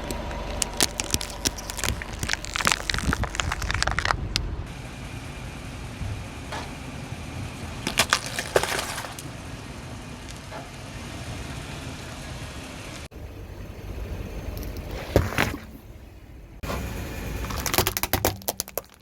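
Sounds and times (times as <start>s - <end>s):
tyre crushing objects: 0.0s - 4.2s, 7.7s - 9.3s
car rumble: 0.0s - 19.0s.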